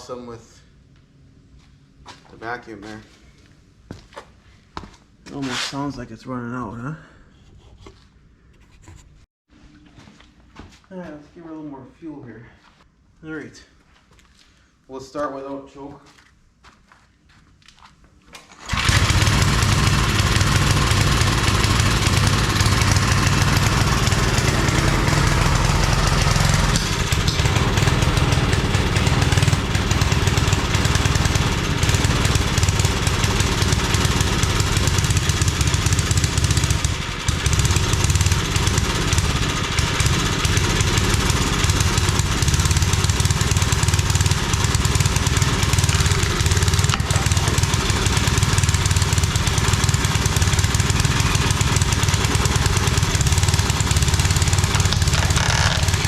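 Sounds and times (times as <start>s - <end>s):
small engine running: 18.6s - 56.0s.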